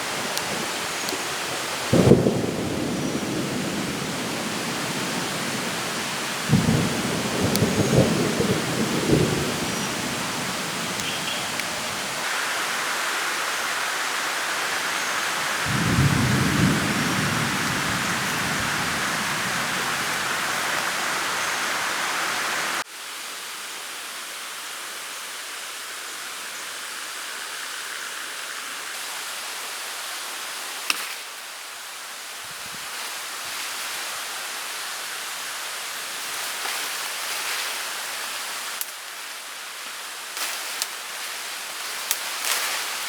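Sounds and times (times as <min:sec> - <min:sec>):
heavy rain: 0:00.0 - 0:43.0
low rumble of thunder: 0:01.9 - 0:12.1, 0:15.7 - 0:21.0.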